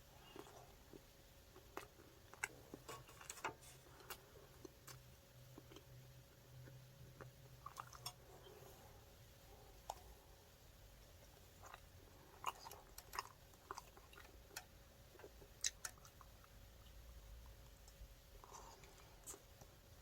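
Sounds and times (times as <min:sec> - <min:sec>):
chewing with wet mouth clicks: 0:00.2 - 0:03.4, 0:04.0 - 0:06.0, 0:06.6 - 0:08.2, 0:11.6 - 0:19.8.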